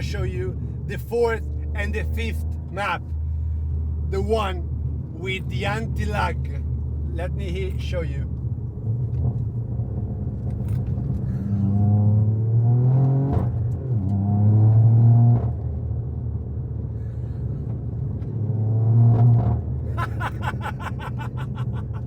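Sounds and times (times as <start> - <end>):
car engine accelerating: 8.3 - 16.9, 17.7 - 22.0.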